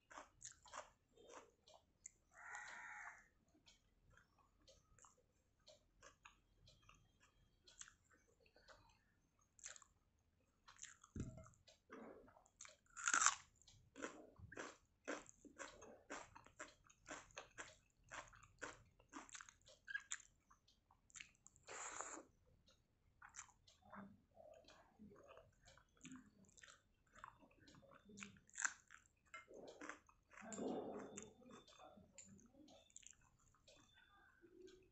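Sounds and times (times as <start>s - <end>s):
person chewing crunchy food: 0.0s - 2.8s, 5.8s - 10.0s, 10.6s - 22.3s, 23.2s - 23.8s, 24.6s - 31.8s, 32.8s - 34.0s.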